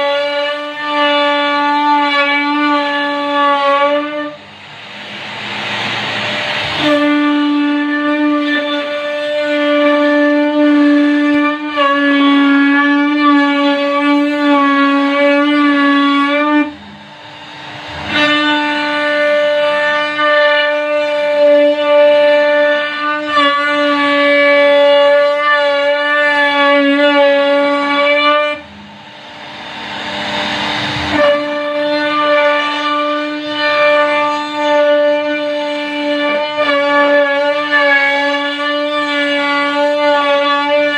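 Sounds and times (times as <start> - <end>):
router spindle whining: 1.0 - 9.6, 12.6 - 23.0, 23.6 - 36.4
rushing noise: 4.3 - 9.0, 15.2 - 21.4, 28.4 - 33.6.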